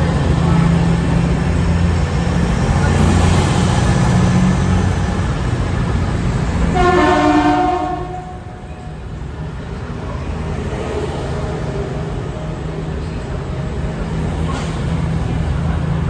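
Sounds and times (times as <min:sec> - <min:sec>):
train engine humming: 0:00.0 - 0:16.0
train horn blast: 0:06.7 - 0:08.9.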